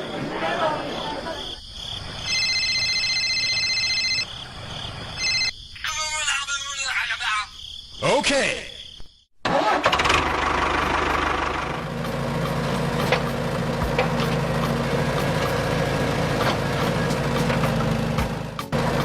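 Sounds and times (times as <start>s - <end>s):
small tractor engine idling: 9.5s - 19.0s.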